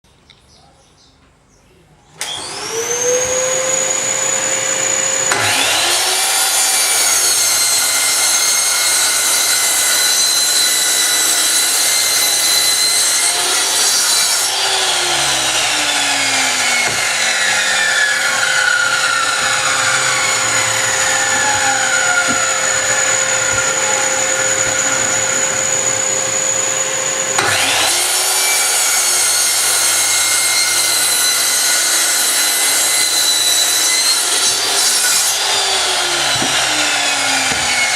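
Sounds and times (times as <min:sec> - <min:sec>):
miter saw motor whining: 0:02.2 - 0:37.9
saw blade cutting wood: 0:02.2 - 0:37.9.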